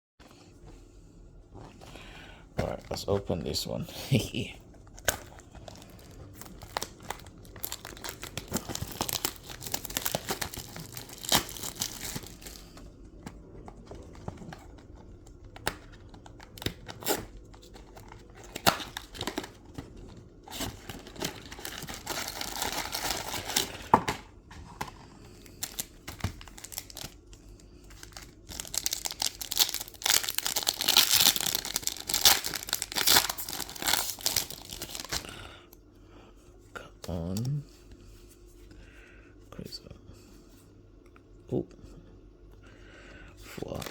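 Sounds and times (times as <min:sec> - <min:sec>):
foil pack tearing and crinkling: 0:05.0 - 0:12.8, 0:15.6 - 0:19.7, 0:20.5 - 0:24.2, 0:25.5 - 0:27.2, 0:27.9 - 0:35.3.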